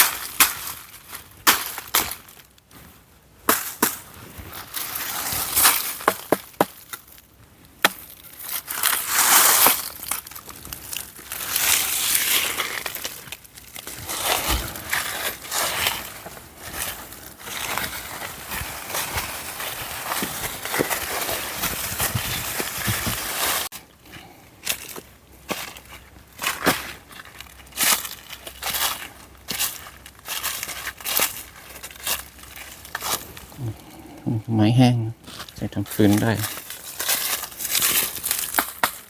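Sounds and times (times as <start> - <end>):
dry wood snapping: 0.0 - 2.7, 5.6 - 16.3, 36.1 - 39.0
leaves crunching underfoot: 0.0 - 7.2, 8.1 - 24.0, 24.6 - 34.0, 35.2 - 39.0.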